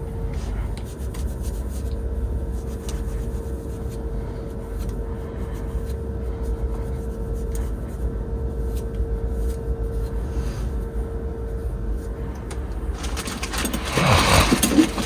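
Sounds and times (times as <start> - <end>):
truck engine rumbling: 12.5 - 15.0.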